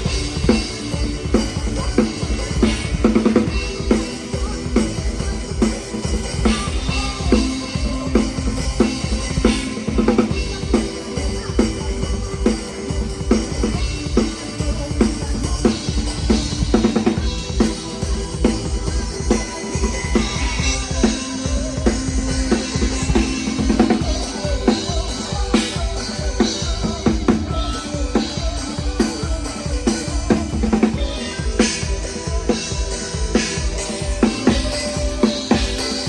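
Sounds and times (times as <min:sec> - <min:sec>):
band playing: 0:00.0 - 0:36.0.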